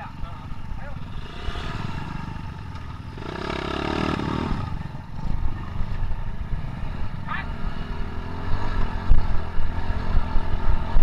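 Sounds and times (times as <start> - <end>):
motorcycle engines idling: 0.0 - 7.6
motorcycle engine revving: 0.0 - 11.0.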